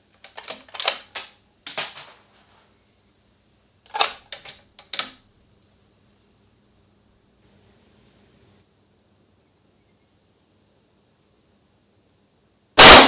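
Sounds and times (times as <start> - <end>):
rifle metallic clicks and knocks: 0.2 - 2.4, 3.9 - 5.2.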